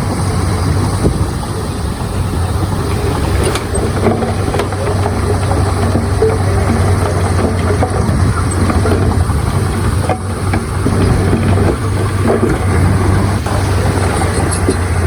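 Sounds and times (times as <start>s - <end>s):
heavy diesel engine humming: 0.0s - 15.0s
light metallic clanks: 2.8s - 15.0s.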